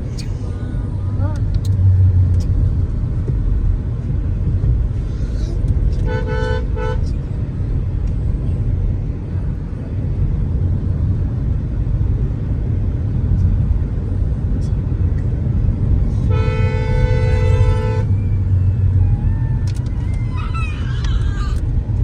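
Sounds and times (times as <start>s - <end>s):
car driving rumble: 0.0s - 22.0s
vehicle horn: 6.0s - 7.1s, 16.2s - 18.2s.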